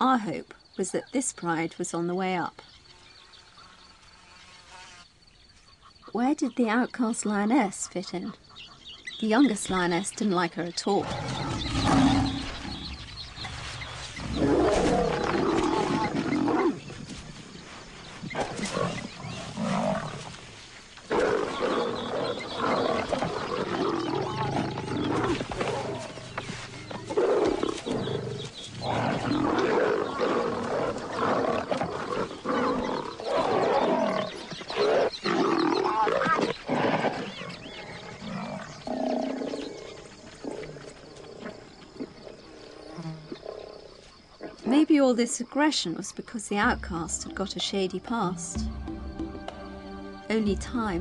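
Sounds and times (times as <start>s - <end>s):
lionesses growling and snarling: 10.8s - 44.9s.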